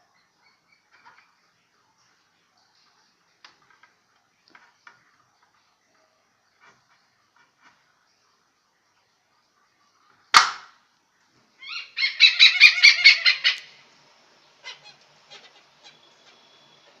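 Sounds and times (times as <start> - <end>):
hornbill calling: 11.6 - 13.8, 14.6 - 17.0.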